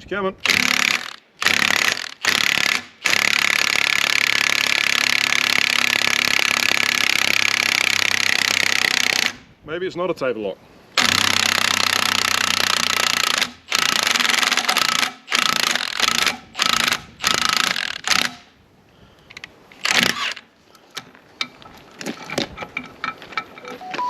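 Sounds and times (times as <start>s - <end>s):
metal parts clicking and tapping: 21.4s - 23.8s.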